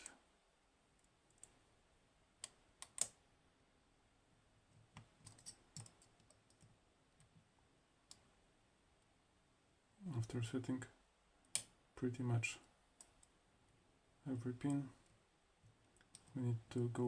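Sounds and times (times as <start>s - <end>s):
lock pick clicks: 2.4s - 3.2s.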